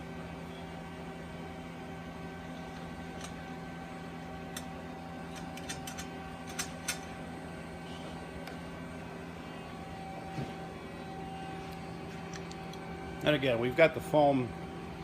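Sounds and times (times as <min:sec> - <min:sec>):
machine hum: 0:00.0 - 0:15.0
tools clicking and tapping: 0:05.3 - 0:07.1.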